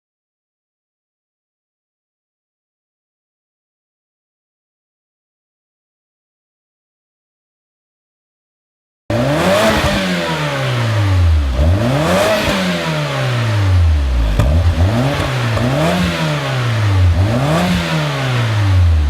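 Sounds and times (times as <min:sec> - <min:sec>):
car engine revving: 0:09.1 - 0:19.0.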